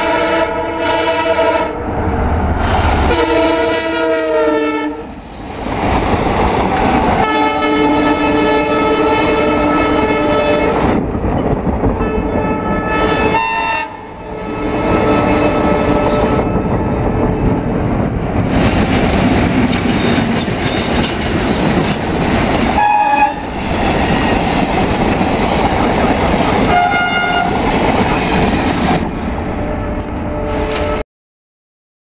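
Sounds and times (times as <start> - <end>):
train horn: 0.0 - 1.8, 3.1 - 5.1, 7.2 - 11.0, 12.0 - 16.8, 22.7 - 23.6, 26.6 - 27.6, 29.6 - 31.0
trains rumbling past: 0.0 - 31.0.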